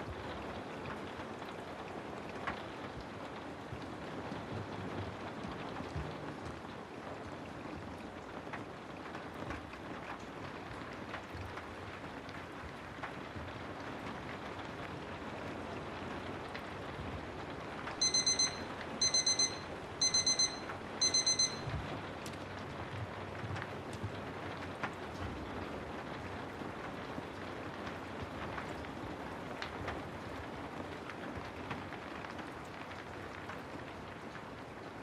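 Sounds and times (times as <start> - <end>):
steady rain: 0.0 - 35.0
timer alarm high beeps: 18.0 - 21.8.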